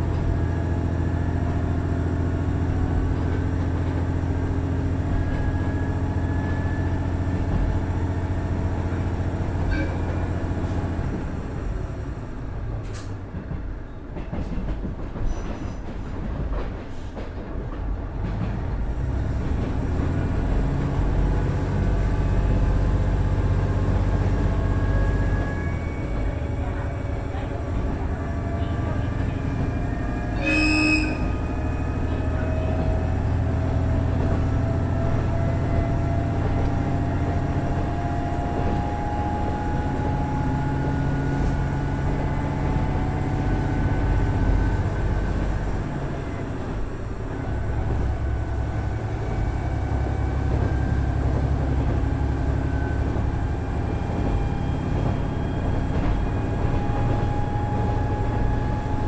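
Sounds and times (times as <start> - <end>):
diesel railcar engine: 0.0 - 59.0
train horn blast: 28.6 - 33.5.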